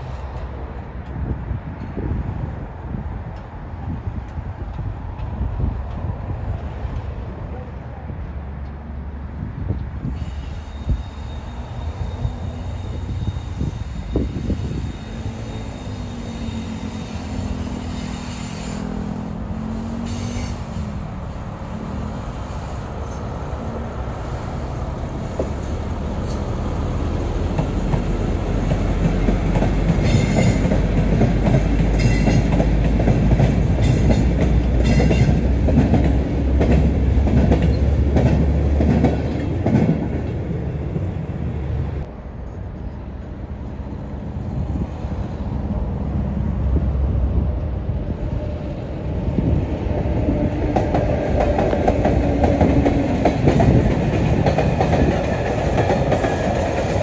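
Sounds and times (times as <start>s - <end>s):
wheel squeals: 10.2s - 19.1s.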